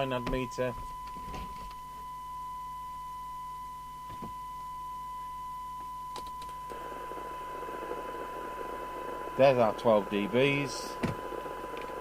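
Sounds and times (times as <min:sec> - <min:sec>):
steady test tone: 0:00.0 - 0:12.0
radio receiver hiss: 0:06.4 - 0:12.0.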